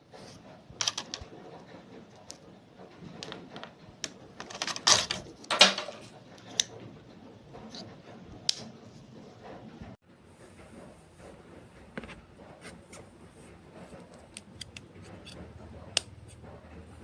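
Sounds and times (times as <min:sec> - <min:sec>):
plastic objects clicking and rustling: 0:00.8 - 0:07.0.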